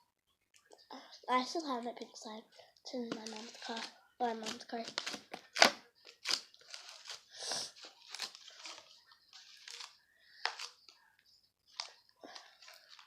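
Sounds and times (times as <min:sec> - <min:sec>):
slime squishing and crackling: 0:03.1 - 0:10.9.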